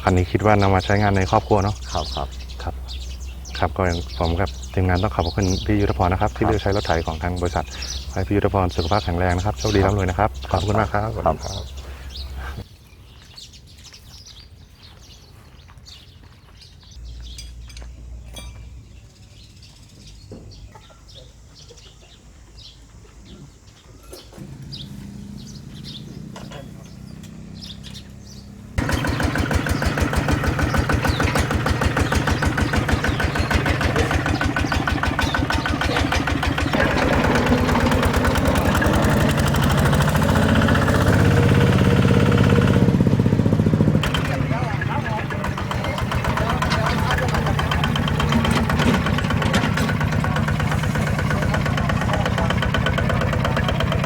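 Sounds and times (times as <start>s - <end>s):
small tractor engine running: 0.0s - 12.7s, 24.2s - 54.0s
birds chirping: 0.0s - 54.0s.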